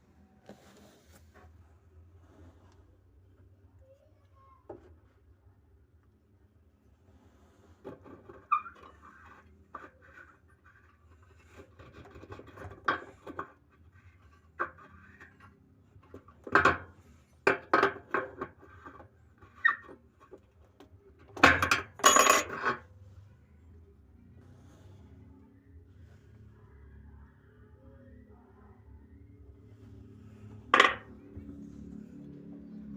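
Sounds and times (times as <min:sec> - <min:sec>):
metal tools clinking: 0:22.0 - 0:22.8.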